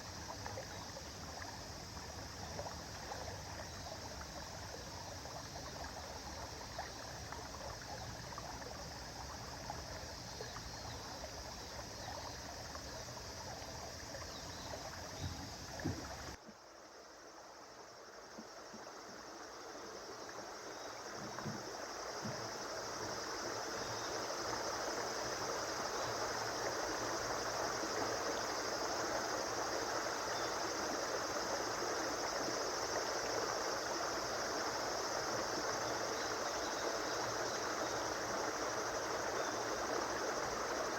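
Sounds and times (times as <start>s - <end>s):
faint low knocks: 15.2s - 16.6s, 21.2s - 22.5s.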